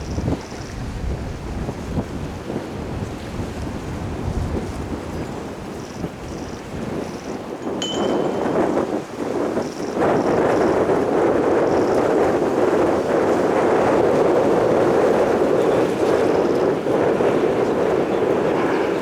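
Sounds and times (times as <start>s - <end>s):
jet engines roaring overhead: 14.0s - 19.0s.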